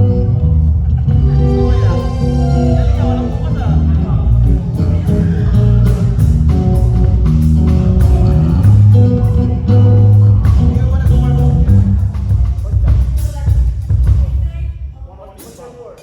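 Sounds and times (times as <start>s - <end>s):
guitar notes: 0.0s - 12.2s
bass guitar notes: 0.0s - 13.2s
drum hits: 1.6s - 14.6s.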